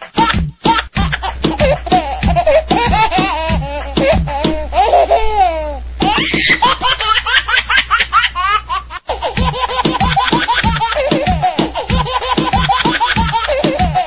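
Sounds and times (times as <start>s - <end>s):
high-pitched laughter: 0.0s - 14.0s.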